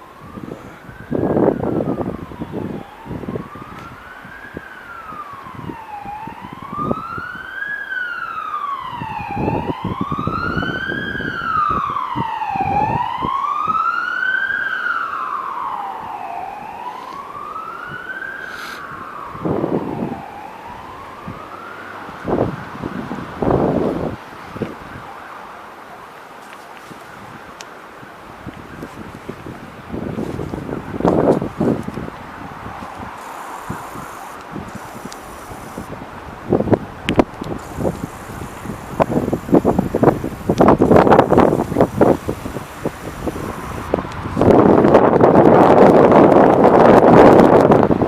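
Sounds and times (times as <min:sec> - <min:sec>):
emergency vehicle siren wailing: 0:00.0 - 0:48.0
short rushes of noise: 0:18.4 - 0:18.8, 0:32.9 - 0:35.9, 0:37.5 - 0:44.5.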